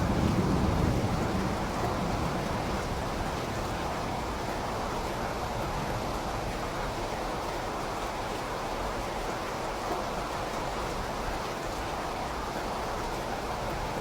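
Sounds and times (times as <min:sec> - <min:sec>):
low thunder rumble: 0:00.0 - 0:03.8
steady rain hiss: 0:00.0 - 0:14.0.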